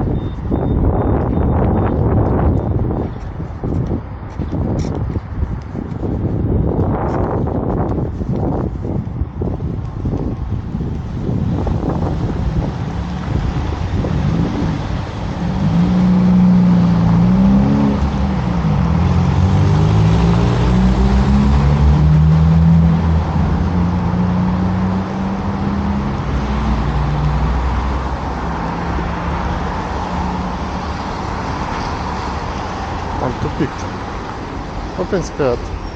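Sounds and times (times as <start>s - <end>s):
car engine accelerating: 10.8s - 35.9s.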